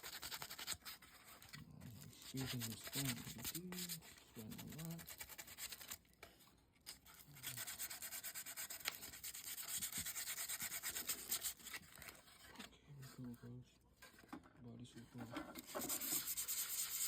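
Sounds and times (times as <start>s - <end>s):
hand-sanding plastic: 0.0s - 6.0s, 6.8s - 12.4s, 15.3s - 17.0s.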